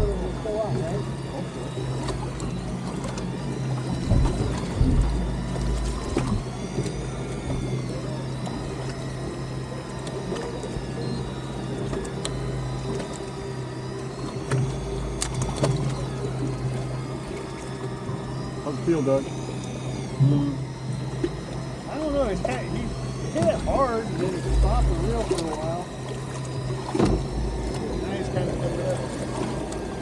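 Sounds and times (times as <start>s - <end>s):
boat engine idling: 0.0s - 30.0s
low thumps: 3.9s - 7.7s.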